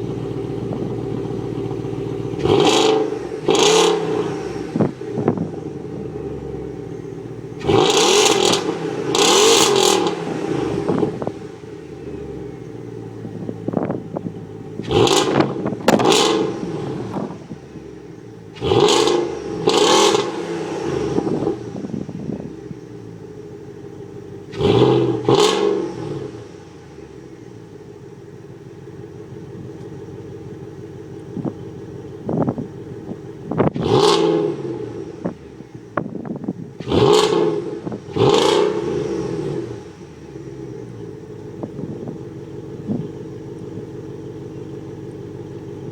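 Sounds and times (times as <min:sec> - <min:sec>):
car engine idling and revving: 0:00.0 - 0:45.9.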